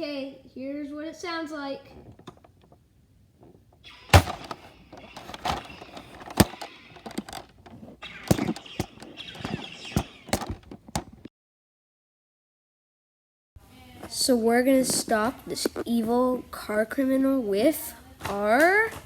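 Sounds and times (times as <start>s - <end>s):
toy gun bangs: 4.1s - 7.4s, 8.1s - 10.7s.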